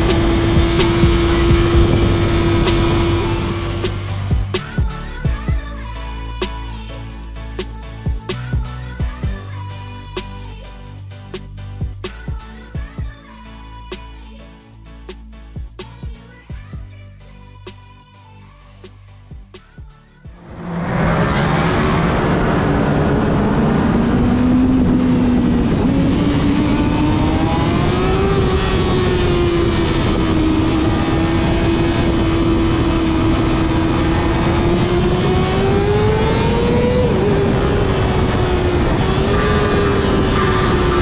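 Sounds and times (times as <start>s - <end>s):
motorcycle engine running: 0.0s - 5.6s, 20.3s - 41.0s.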